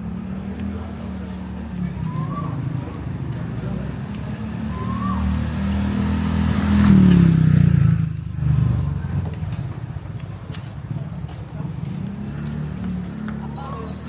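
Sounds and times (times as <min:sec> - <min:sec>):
vehicle passing close by: 0:00.0 - 0:10.3.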